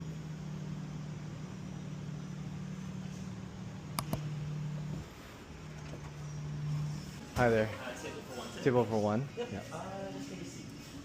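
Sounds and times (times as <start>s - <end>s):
low mechanical hum: 0.0s - 11.0s
sharp clicks: 4.0s - 4.2s.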